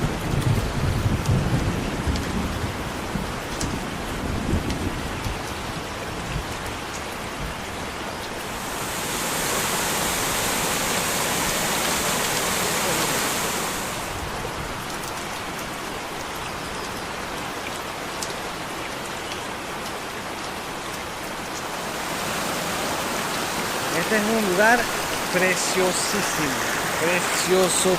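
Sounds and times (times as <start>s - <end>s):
waterfall rushing: 8.4s - 14.6s, 21.3s - 27.9s.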